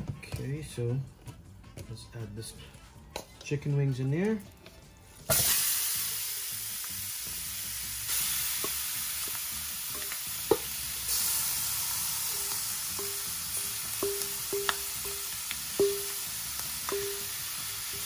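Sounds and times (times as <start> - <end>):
chicken wings sizzling in oil: 5.3 - 18.0.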